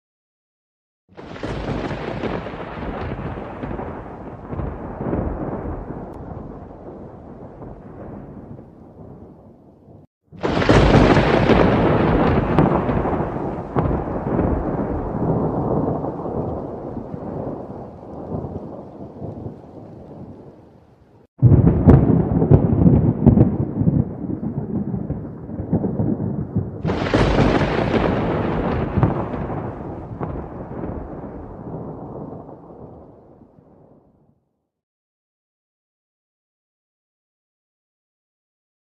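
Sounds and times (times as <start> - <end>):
loud thunder clap: 1.2 - 9.4, 10.4 - 20.3, 21.4 - 33.6
thunder rumbling: 1.2 - 20.8, 21.4 - 34.1.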